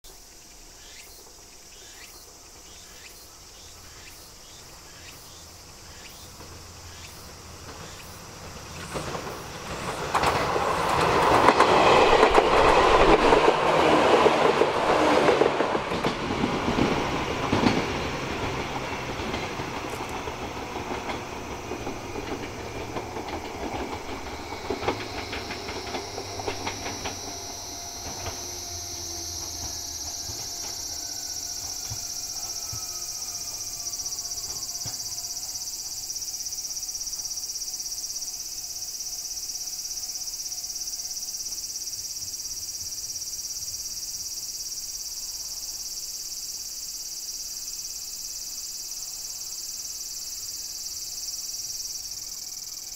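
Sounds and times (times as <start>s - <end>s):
electric train rumbling: 0.1s - 52.9s
wheels clacking over rail joints: 6.1s - 37.7s.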